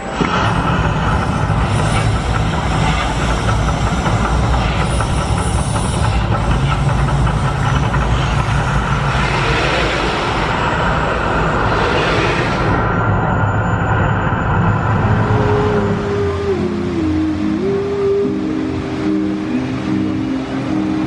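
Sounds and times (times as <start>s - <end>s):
loud low rumble: 0.0s - 21.0s
hiss: 0.1s - 12.9s.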